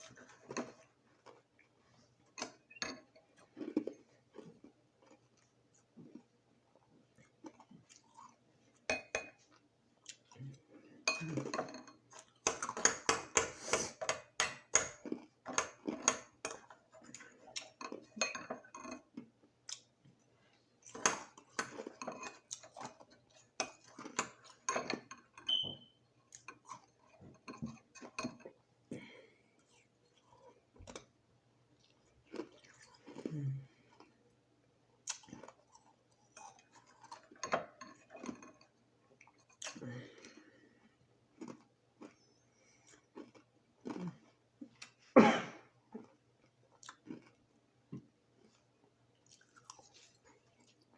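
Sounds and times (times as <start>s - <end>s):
crushed ice being chewed: 35.1s - 39.2s, 41.3s - 44.4s, 46.0s - 47.4s.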